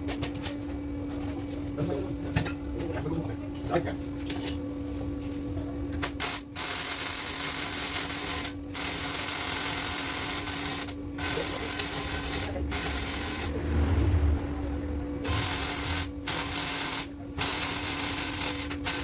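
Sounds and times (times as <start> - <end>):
constant low hum: 0.0 - 19.0
welding hiss: 6.2 - 13.6, 15.2 - 19.0.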